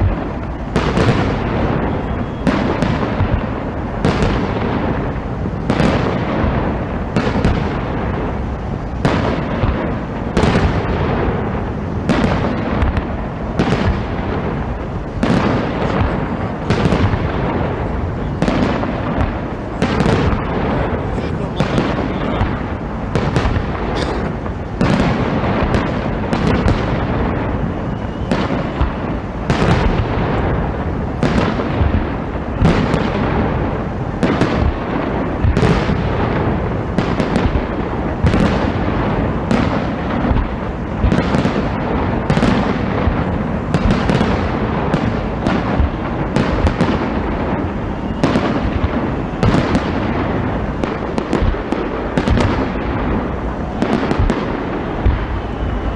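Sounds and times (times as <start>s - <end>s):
fireworks barrage: 0.0s - 55.9s.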